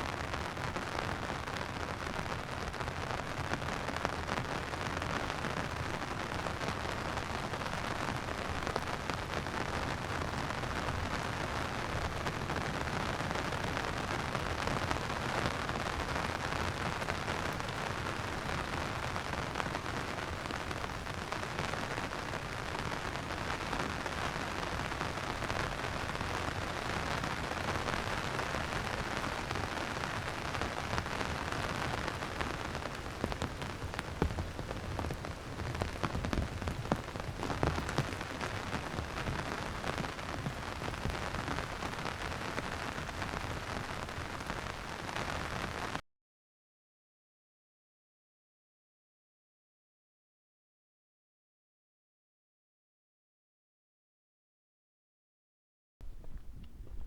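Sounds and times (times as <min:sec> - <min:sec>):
rain hissing with drop ticks: 0:00.1 - 0:46.0.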